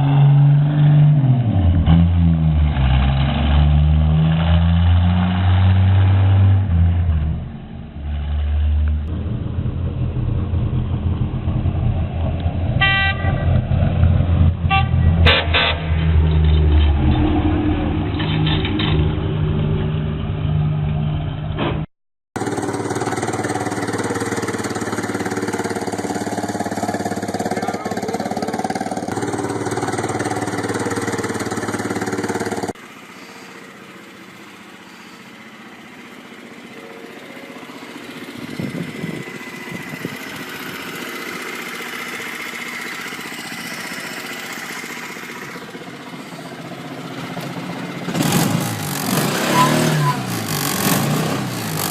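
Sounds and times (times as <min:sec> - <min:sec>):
small car engines running: 0:22.4 - 0:51.9.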